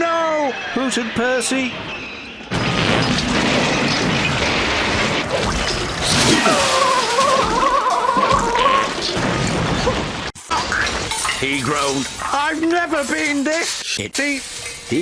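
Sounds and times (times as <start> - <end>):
music: 0.0 - 2.6
smashing and clattering crash: 2.5 - 15.0.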